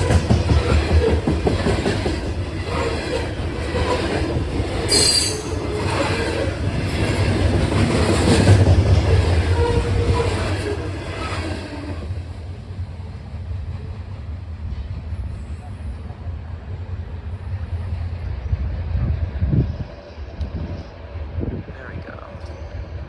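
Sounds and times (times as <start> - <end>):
train cars rolling on rails: 0.0 - 23.0
wheels squealing: 4.9 - 6.2.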